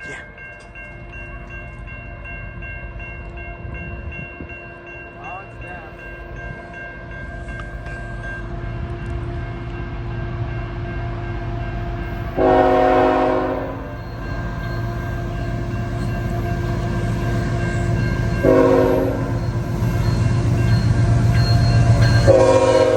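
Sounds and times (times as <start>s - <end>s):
train rumble: 0.0s - 22.9s
locomotive horn blast: 12.4s - 14.0s, 18.4s - 19.4s, 22.2s - 22.9s.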